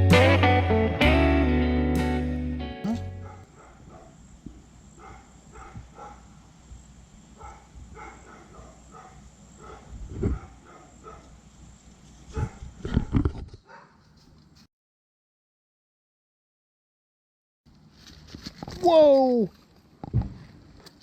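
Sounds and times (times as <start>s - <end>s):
dogs barking: 3.2s - 4.2s, 5.0s - 6.3s, 7.4s - 11.4s, 12.3s - 12.7s, 13.7s - 14.0s.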